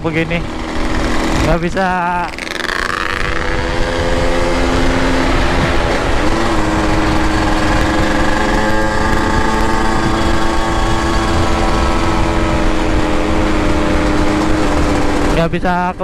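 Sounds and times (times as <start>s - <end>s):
two-stroke motorcycle engine: 0.0s - 16.0s
wind rumbling on microphone: 0.0s - 16.0s.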